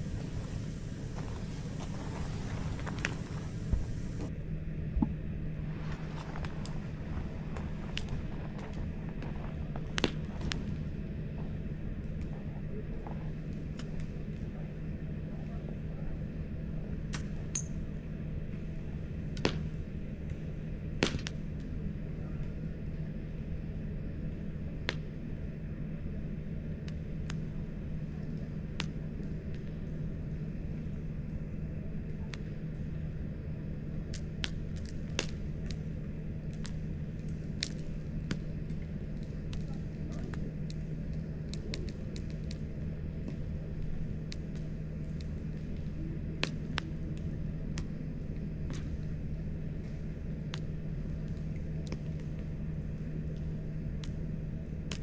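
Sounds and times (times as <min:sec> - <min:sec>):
wood crackling and popping: 0:00.0 - 0:04.3, 0:05.8 - 0:14.6, 0:26.7 - 0:55.0
campfire rumble: 0:00.0 - 0:55.0.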